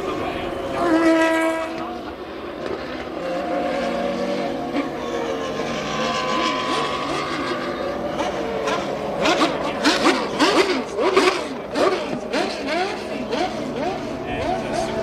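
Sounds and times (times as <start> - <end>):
racing car engines: 0.0 - 15.0
racing car passing by: 0.0 - 15.0.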